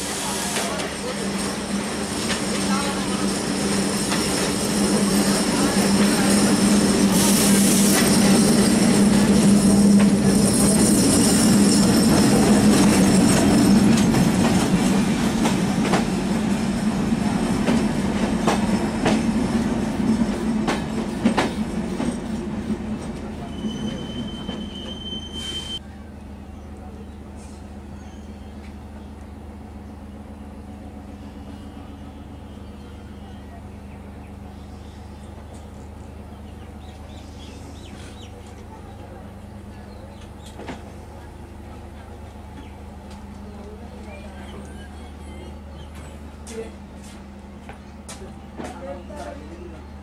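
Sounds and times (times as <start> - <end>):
diesel locomotive engine running: 0.0 - 50.0
train wheels clicking over rail joints: 0.4 - 16.6, 17.4 - 24.7
thin high squeal: 23.5 - 25.8.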